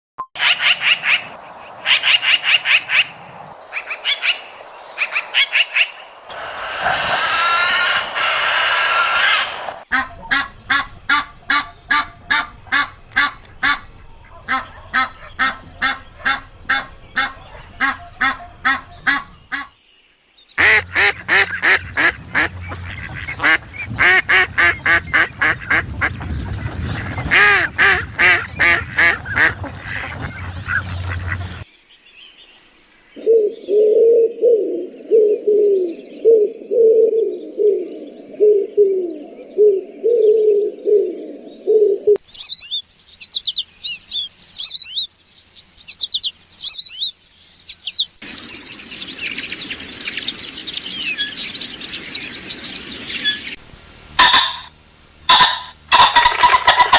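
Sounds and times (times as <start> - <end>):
waterfowl honking: 5.1 - 19.8, 20.6 - 25.9, 54.2 - 56.9
pigeon-like cooing: 33.2 - 42.2.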